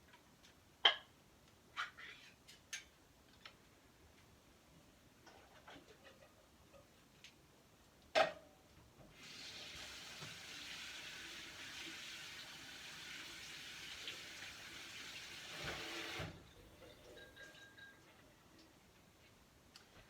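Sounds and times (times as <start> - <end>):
tap water running into sink: 9.1 - 17.3.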